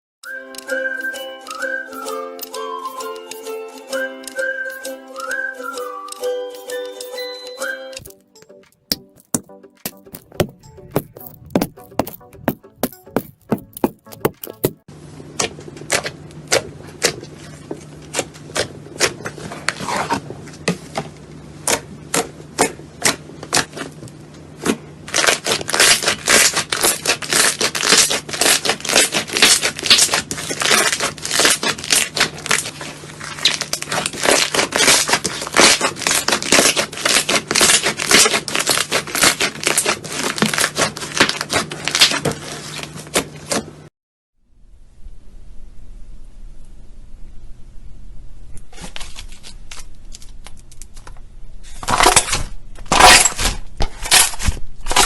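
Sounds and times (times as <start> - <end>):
slime crackling and popping: 25.1 - 42.3
faint steady hum: 44.4 - 52.9.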